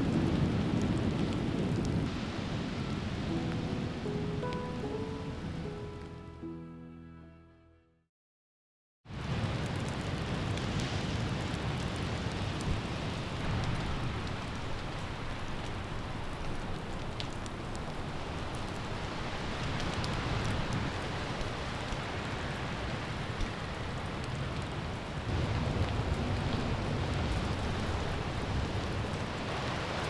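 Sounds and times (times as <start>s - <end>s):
rain falling: 0.0s - 6.3s, 9.1s - 30.0s
wind buffeting microphone: 9.2s - 30.0s.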